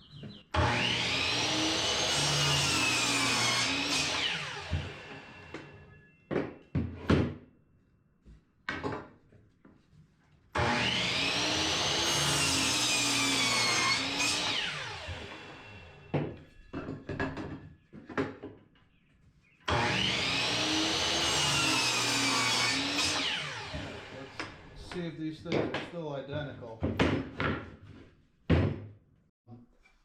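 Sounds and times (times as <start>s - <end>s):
miter saw cutting wood: 0.6s - 6.0s, 10.6s - 16.2s, 19.7s - 25.1s
wood knocking and clattering: 8.6s - 9.4s, 16.1s - 18.7s, 25.5s - 27.8s.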